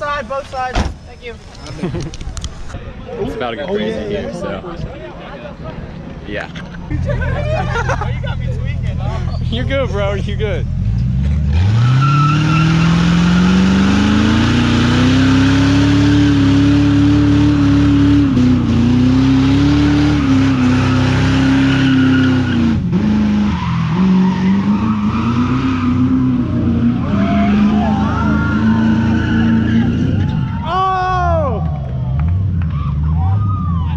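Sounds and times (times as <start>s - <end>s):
tires screeching: 5.6s - 33.9s
car engine revving: 7.0s - 30.4s.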